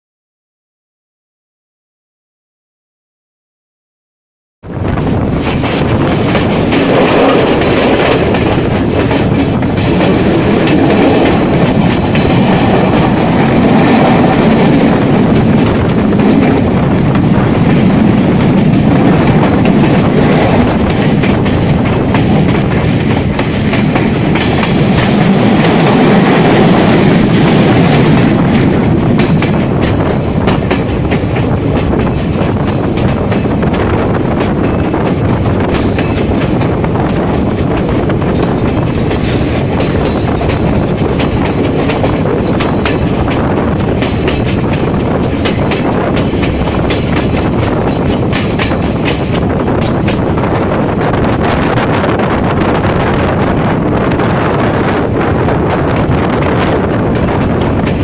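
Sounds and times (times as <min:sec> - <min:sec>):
rushing air: 0:04.6 - 0:58.0
train wheels rumbling on track: 0:04.6 - 0:58.0
clicking over rail joints: 0:17.6 - 0:51.0
high wheel squeal: 0:30.1 - 0:33.6.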